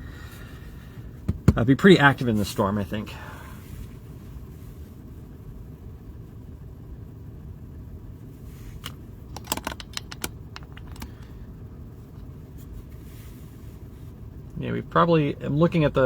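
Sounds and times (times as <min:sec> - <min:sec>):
steady low rumble: 0:00.0 - 0:16.0
sharp clicks and taps: 0:09.4 - 0:11.1.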